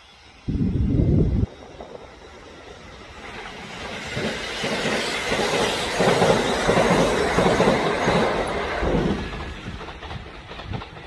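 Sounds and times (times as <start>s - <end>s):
electric train passing: 0.0s - 11.0s
wheels clattering over rail joints: 1.8s - 11.0s.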